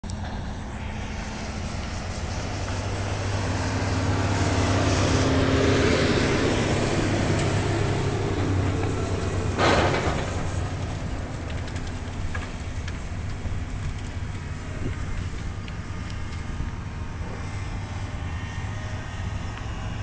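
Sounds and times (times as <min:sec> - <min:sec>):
locomotive engine drone: 0:00.0 - 0:20.0
rail noise: 0:00.0 - 0:20.0
loud burst: 0:09.5 - 0:12.0.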